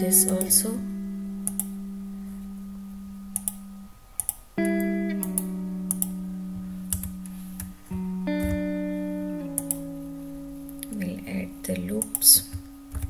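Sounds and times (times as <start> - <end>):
guitar chords ringing: 0.0 - 13.0
computer mouse clicks: 4.2 - 4.4, 9.6 - 9.8.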